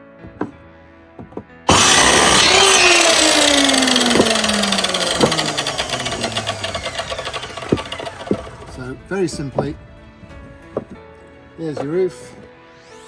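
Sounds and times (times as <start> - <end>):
mitre saw cutting wood: 1.2 - 9.8, 10.7 - 11.0, 11.6 - 13.0
light knocks: 9.4 - 11.1.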